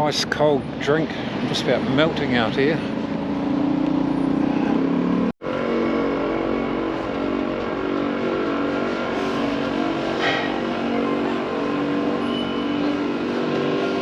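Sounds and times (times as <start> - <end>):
motorcycle engine running: 4.8 - 14.0.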